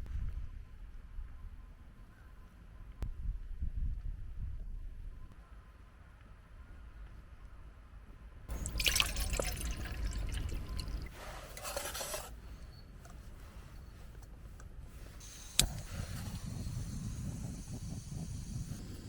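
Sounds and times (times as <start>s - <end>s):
water pouring into container: 8.5s - 12.3s.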